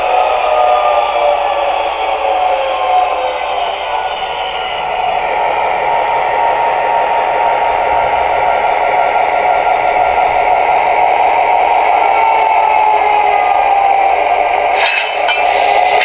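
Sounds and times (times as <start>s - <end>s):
model train rolling on track: 0.0s - 16.0s
sharp clattering: 14.8s - 16.0s.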